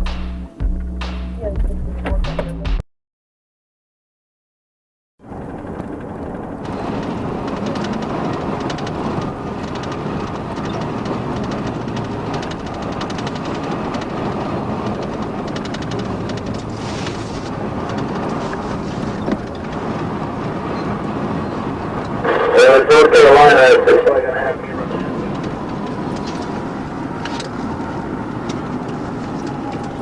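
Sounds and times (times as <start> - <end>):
vehicle road and engine noise: 0.0 - 2.6, 5.2 - 30.0
faint regular clatter: 5.3 - 20.9, 25.0 - 30.0.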